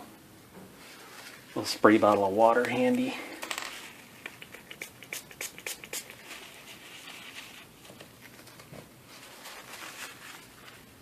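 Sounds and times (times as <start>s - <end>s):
scrubbing hiss of wiping: 4.1s - 7.8s
spray bottle spritzing: 4.2s - 6.4s.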